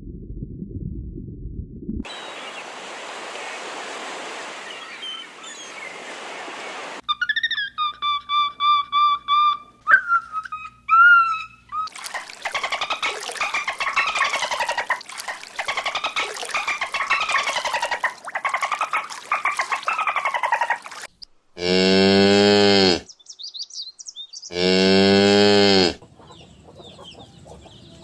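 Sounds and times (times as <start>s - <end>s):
bird rasping warble: 26.0s - 28.0s.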